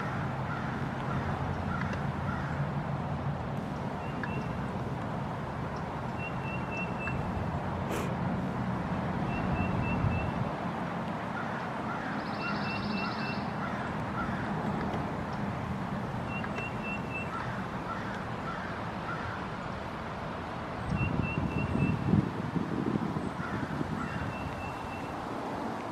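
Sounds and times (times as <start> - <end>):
birds chirping: 3.7 - 4.7, 5.8 - 7.3, 11.4 - 14.5, 16.2 - 19.4.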